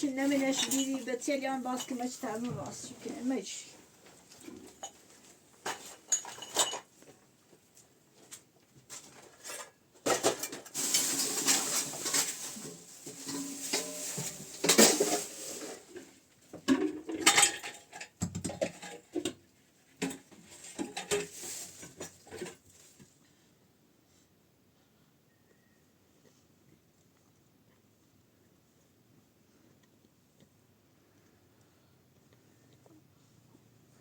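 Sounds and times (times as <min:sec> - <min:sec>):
hard objects clattering: 0:00.0 - 0:03.3, 0:04.3 - 0:07.0, 0:08.9 - 0:22.8
scraping: 0:09.2 - 0:16.1.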